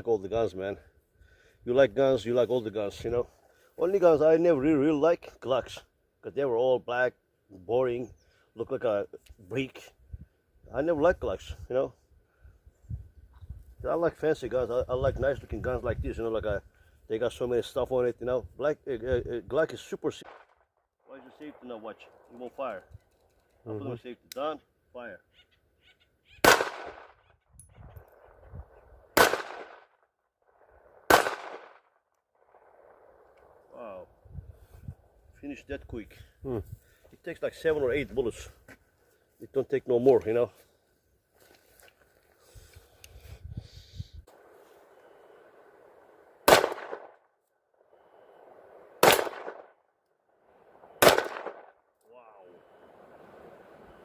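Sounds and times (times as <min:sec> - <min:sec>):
pistol shots with echo: 0:26.4 - 0:27.2, 0:29.1 - 0:29.9, 0:31.0 - 0:31.8, 0:46.4 - 0:47.2, 0:49.0 - 0:49.8, 0:51.0 - 0:51.8.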